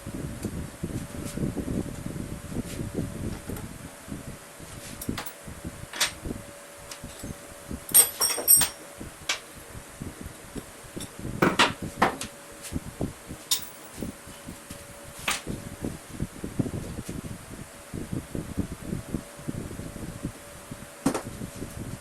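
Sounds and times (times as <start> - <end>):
faint steady hum: 0.0 - 22.0
ringing metallic clinks: 7.2 - 8.8
wood and tools clattering: 7.2 - 9.4.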